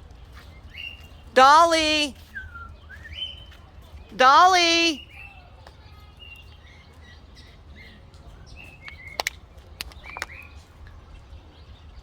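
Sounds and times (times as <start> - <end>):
birds chirping: 0.3 - 5.4.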